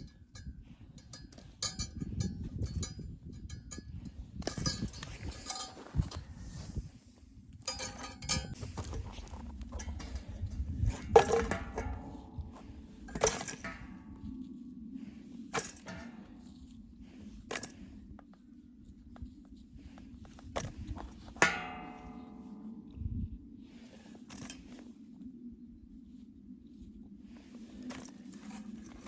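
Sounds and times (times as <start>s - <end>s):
knocks and clinks: 0.0s - 6.3s, 7.7s - 14.0s
steady low hum: 0.0s - 29.0s.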